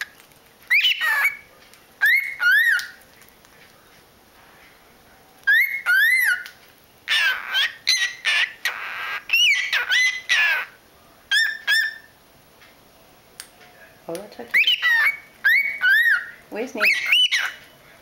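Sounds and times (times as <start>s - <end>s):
cockatiels chirping and whistling: 0.7s - 3.0s, 5.4s - 12.1s, 14.5s - 17.6s.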